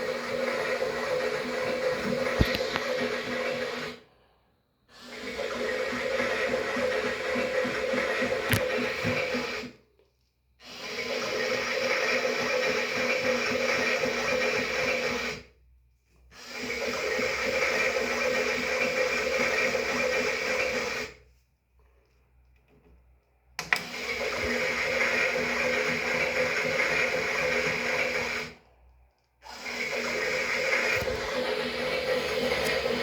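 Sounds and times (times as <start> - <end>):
small electric motor whirring: 0.5 - 3.9, 29.5 - 33.0
motor click: 2.3 - 2.9.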